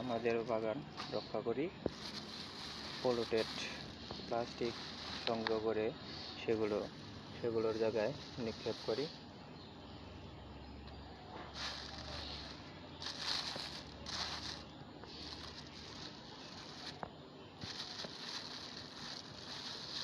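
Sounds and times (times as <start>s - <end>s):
plastic crinkling and rustling: 0.0s - 9.2s, 11.4s - 20.0s.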